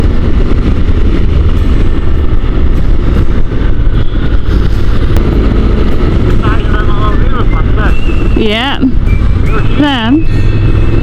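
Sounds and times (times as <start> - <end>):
motorcycle road noise: 0.0 - 11.0
wind noise: 0.0 - 11.0.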